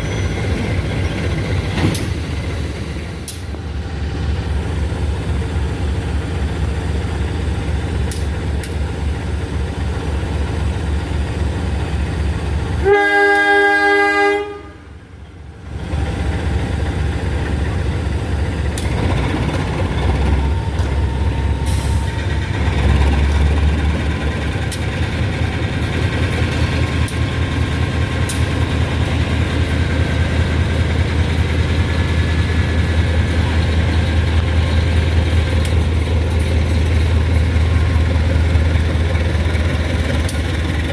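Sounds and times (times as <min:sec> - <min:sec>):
train rumbling: 0:00.0 - 0:40.9
train horn: 0:12.8 - 0:15.0.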